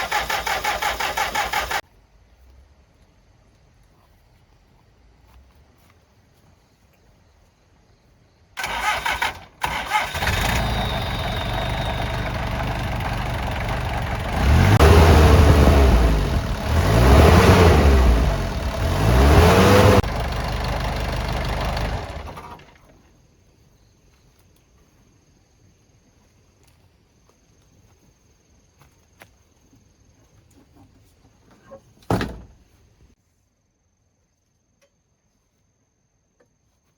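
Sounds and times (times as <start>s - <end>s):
truck engine cranking and starting: 0.0s - 1.8s, 8.6s - 23.0s
truck engine revving: 8.6s - 22.6s.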